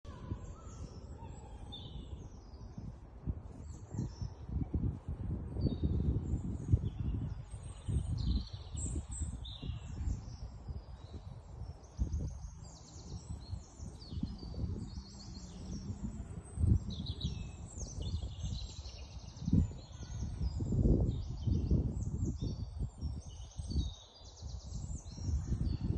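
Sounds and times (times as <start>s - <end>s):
songbirds chirping and singing: 0.1s - 25.9s
low rumbling noise: 13.0s - 19.8s.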